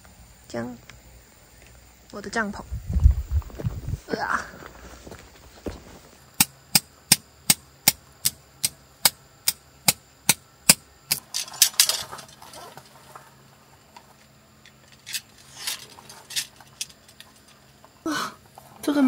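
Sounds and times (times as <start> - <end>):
rustle and clatter: 0.8 - 6.2, 11.1 - 19.0
tent stake being hammered: 6.4 - 11.2.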